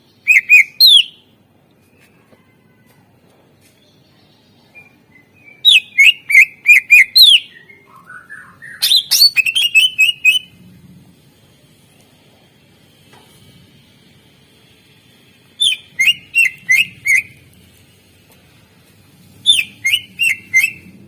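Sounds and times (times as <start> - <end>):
bird singing: 0.0 - 2.2, 3.8 - 10.5, 15.6 - 17.4, 19.4 - 21.0.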